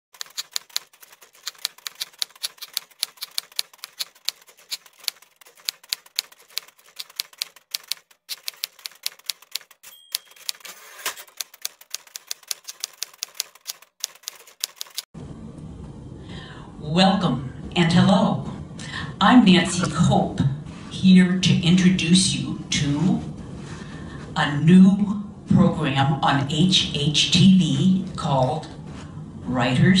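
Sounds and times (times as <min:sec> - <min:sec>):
typewriter carriage return: 0:00.2 - 0:15.1
typewriter keystrokes: 0:00.2 - 0:15.1
typewriter margin bell ding: 0:08.3 - 0:11.7.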